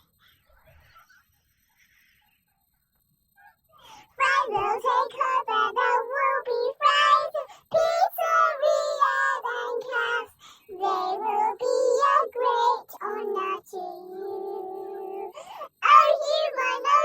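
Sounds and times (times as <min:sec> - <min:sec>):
high-pitched voice singing: 0:04.0 - 0:17.0.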